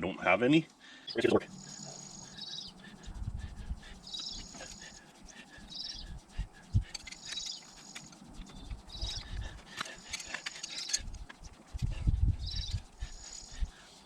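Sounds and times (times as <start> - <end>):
birds chirping: 0.0 - 14.0
sharp clicks: 6.7 - 11.9.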